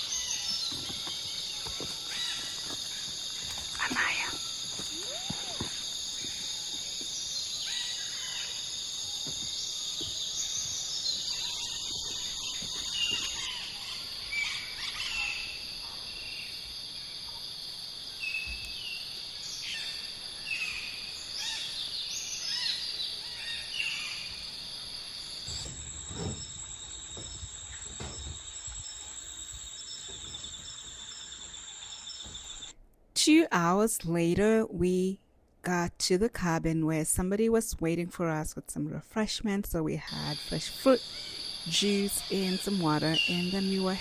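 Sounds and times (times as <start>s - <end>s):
insect chorus drone: 0.0s - 32.7s, 40.0s - 44.0s
short chirping calls: 3.7s - 8.6s.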